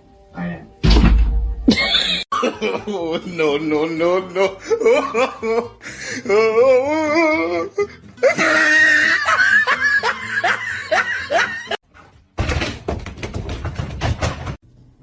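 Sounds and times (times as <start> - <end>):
person laughing hard: 1.7 - 11.8.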